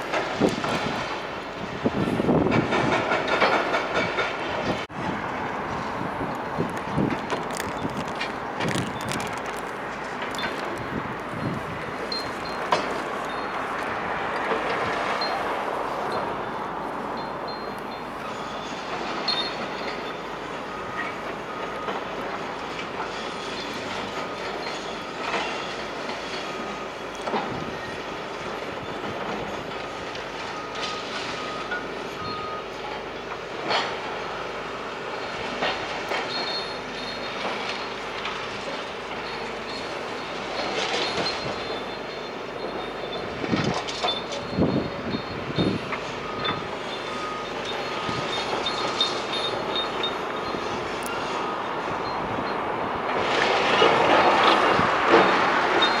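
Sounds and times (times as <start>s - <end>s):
demolition machinery rumbling: 0.0s - 31.6s, 33.7s - 56.0s
material breaking with crunches: 6.4s - 11.3s.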